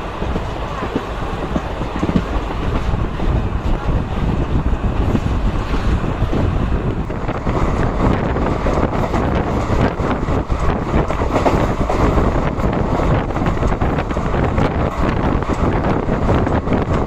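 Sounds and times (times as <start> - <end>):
train wheels rumbling: 0.0 - 17.0
wind buffeting microphone: 0.0 - 17.0
rapid clatter of knocks: 0.3 - 2.9.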